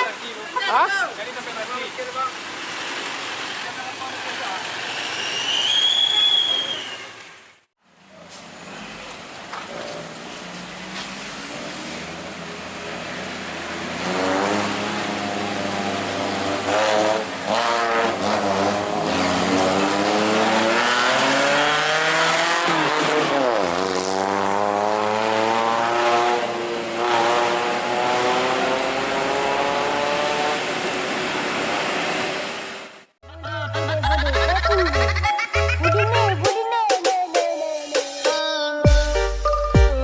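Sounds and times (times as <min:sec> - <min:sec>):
truck engine revving: 0:01.3 - 0:07.7, 0:08.7 - 0:32.7.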